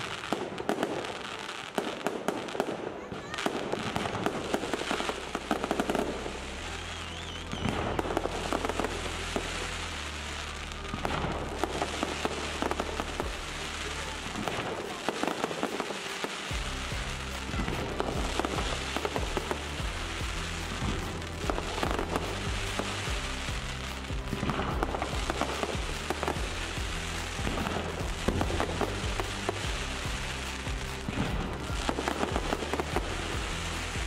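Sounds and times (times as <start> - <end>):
fireworks crackling and popping: 0.0 - 34.0
music with deep bass: 4.0 - 15.3, 16.2 - 34.0.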